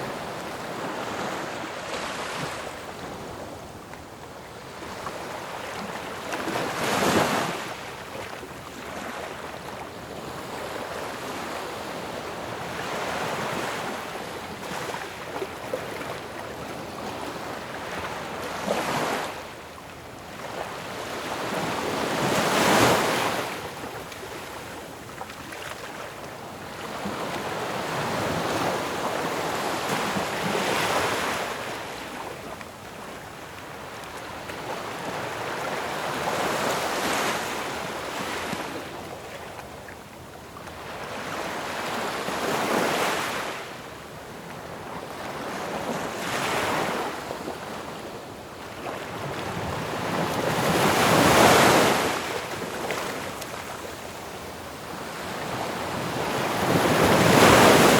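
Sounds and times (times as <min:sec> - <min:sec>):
ocean waves breaking on shore: 0:00.0 - 0:19.6, 0:44.6 - 0:57.9.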